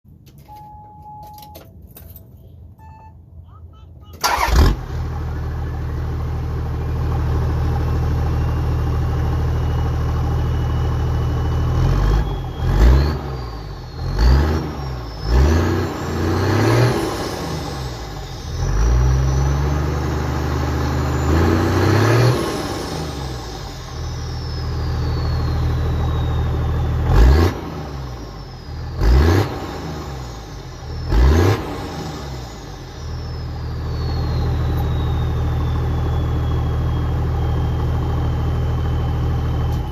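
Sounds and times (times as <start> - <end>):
diesel engine starting and revving: 4.1 - 39.9
turbo whistle: 8.2 - 39.8.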